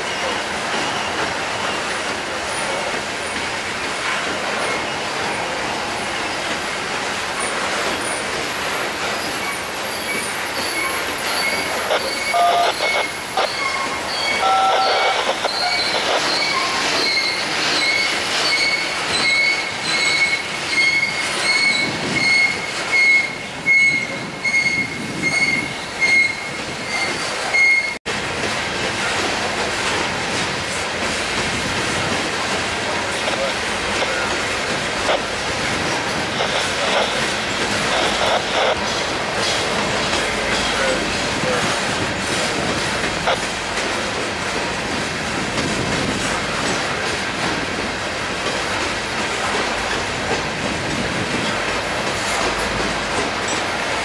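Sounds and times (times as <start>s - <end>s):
high-pitched wheel squeal: 9.4s - 28.0s
wheels clacking over rail joints: 15.6s - 54.0s.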